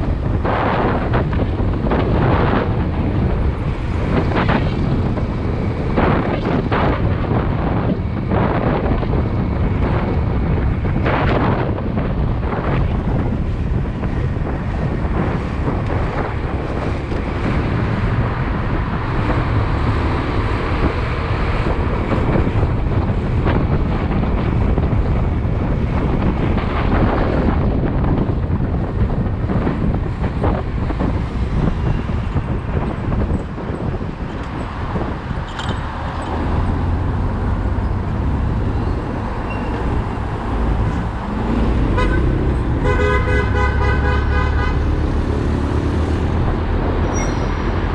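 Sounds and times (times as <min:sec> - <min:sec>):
motorcycle road noise: 0:00.0 - 0:47.9
wind buffeting microphone: 0:00.0 - 0:47.9
vehicle horn: 0:41.8 - 0:44.9.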